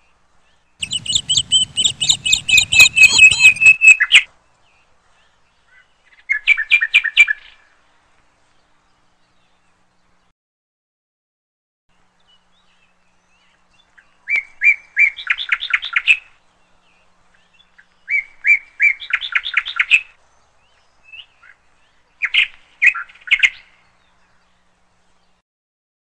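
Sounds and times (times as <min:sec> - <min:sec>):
bird singing: 0:00.5 - 0:07.5.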